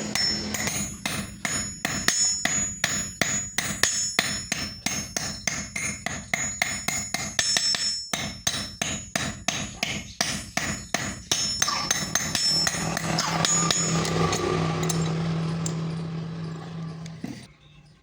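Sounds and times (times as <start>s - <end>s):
hammer striking steel on anvil: 0.0s - 17.5s
steady whirring with low hum: 11.6s - 17.6s.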